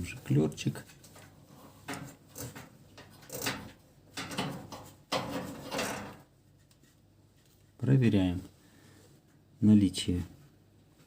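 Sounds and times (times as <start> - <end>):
metal parts scraping and clicking: 2.3 - 6.2.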